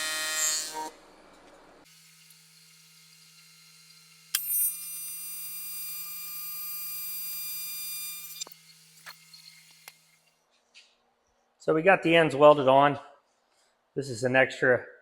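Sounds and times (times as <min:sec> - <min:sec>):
welding arc buzzing: 0:01.9 - 0:10.3.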